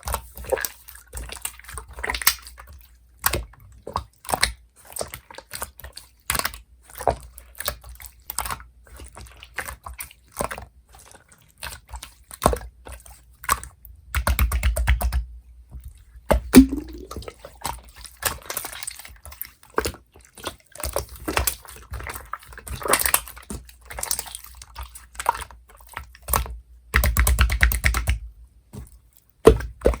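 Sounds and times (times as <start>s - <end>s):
hands squishing slime: 16.6s - 17.1s.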